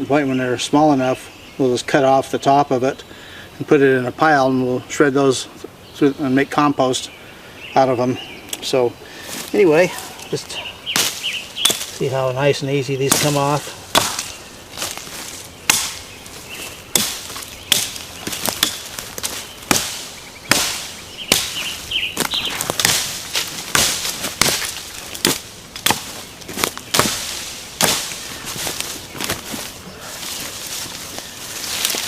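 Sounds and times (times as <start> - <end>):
axe chopping branches: 10.9 - 12.0, 13.0 - 32.0.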